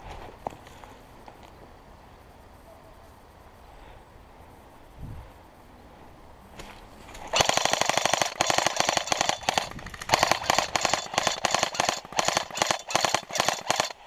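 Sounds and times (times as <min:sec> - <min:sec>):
airsoft guns firing full auto: 0:07.3 - 0:14.0.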